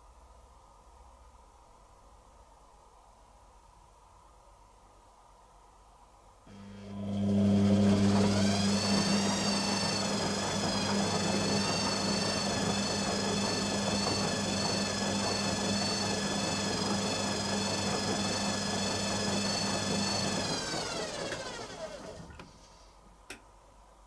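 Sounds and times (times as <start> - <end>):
high motor whine: 6.5 - 22.3
washing machine hum: 6.5 - 23.4.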